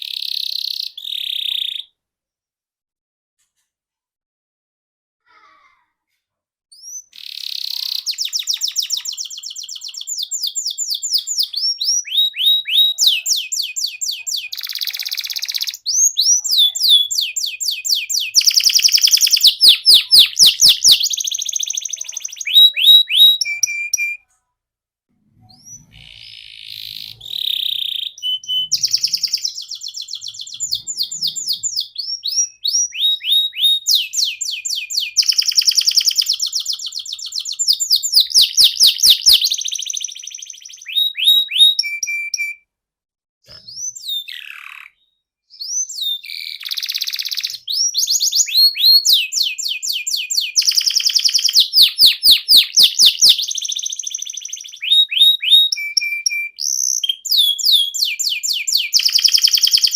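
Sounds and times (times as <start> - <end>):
canary singing trills: 0.0 - 1.9, 6.7 - 24.3, 25.3 - 42.6, 43.5 - 59.9.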